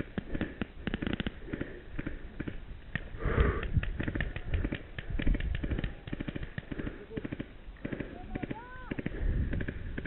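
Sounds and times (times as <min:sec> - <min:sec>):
person breathing close: 0:00.0 - 0:02.4, 0:03.1 - 0:04.7
paintball markers firing: 0:00.0 - 0:10.0.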